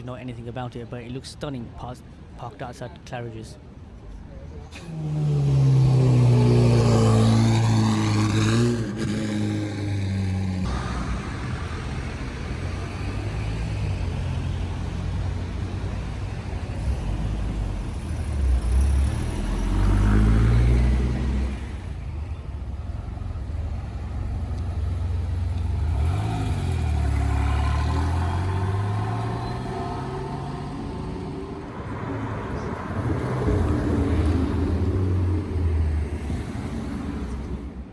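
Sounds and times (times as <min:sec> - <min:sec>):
car engines revving: 0:03.8 - 0:37.9.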